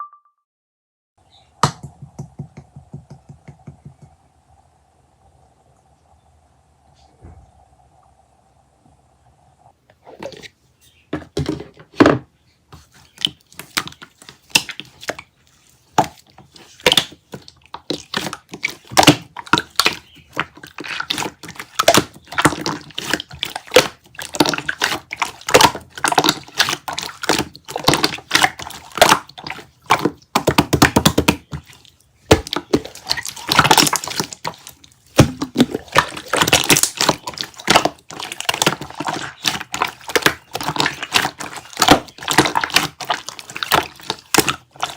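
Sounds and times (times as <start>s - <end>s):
crisp crunching and crackling: 13.2s - 44.9s.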